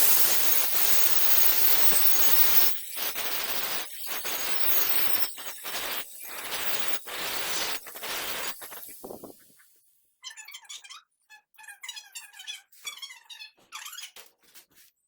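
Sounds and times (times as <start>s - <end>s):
welding arc crackling and hissing: 0.0s - 9.9s.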